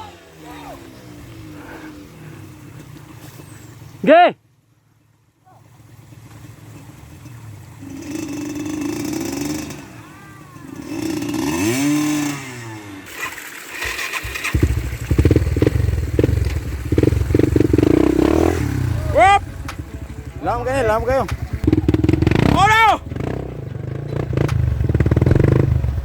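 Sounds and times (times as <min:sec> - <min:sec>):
dirt bike engine revving: 0:05.6 - 0:26.0
loud engine pulsing roughly: 0:06.8 - 0:26.0.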